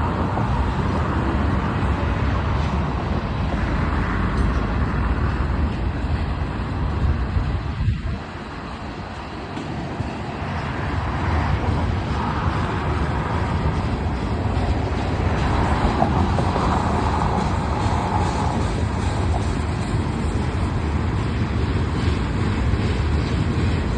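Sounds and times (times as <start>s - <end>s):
freight train wheels rumbling on rail: 0.0s - 23.9s.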